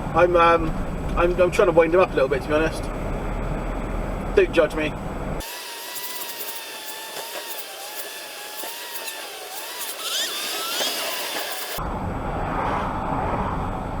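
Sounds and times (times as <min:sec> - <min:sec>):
small motor whining: 0:05.4 - 0:11.8.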